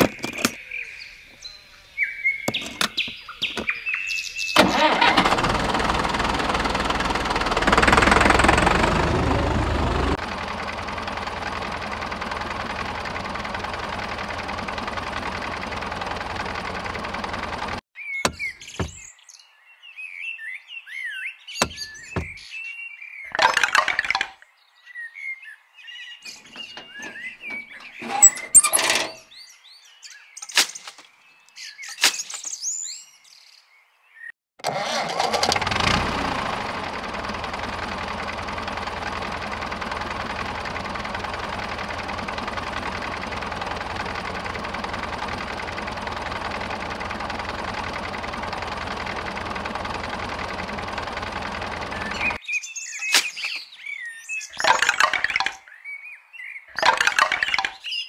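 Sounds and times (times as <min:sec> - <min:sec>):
tractor engine running: 0:04.6 - 0:19.1, 0:21.6 - 0:22.4, 0:26.3 - 0:29.2, 0:34.6 - 0:52.4, 0:54.6 - 0:55.6, 0:56.8 - 0:57.7.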